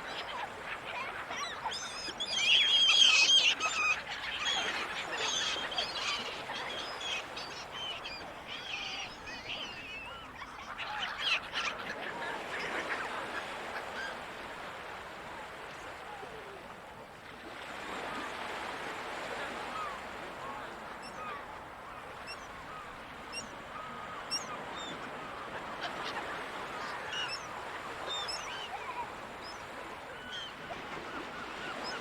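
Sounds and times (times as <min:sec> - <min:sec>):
seagulls calling: 0:00.0 - 0:14.8, 0:19.3 - 0:32.0
ocean noise: 0:12.0 - 0:32.0.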